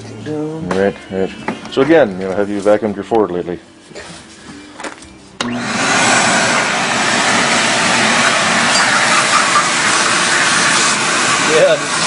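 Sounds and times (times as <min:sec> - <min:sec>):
shop vacuum running: 0:05.4 - 0:12.0.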